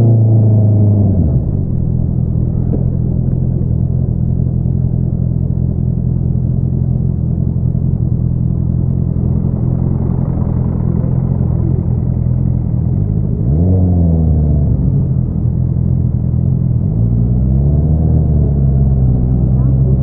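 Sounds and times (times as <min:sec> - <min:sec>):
motorcycle engine idling: 0:01.4 - 0:17.0.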